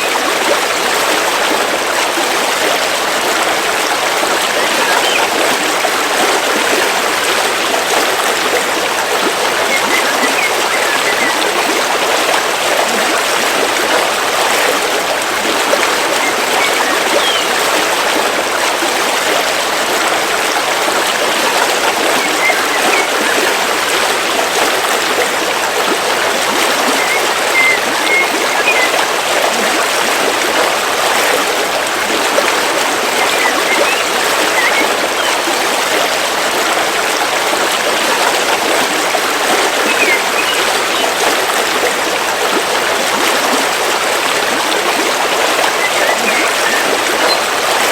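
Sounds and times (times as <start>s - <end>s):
river water flowing over rocks: 0.0s - 47.9s
faint bird chirps: 16.2s - 17.5s, 26.9s - 29.0s, 33.2s - 35.4s, 39.8s - 41.1s, 45.7s - 47.4s.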